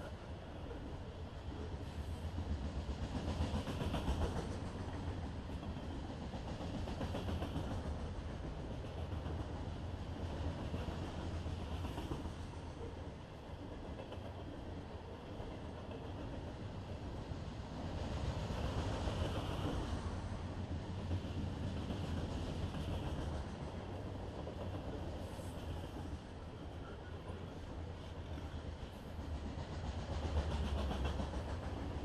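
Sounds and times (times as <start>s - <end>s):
freight train wheels rumbling on rails: 0.0s - 32.0s.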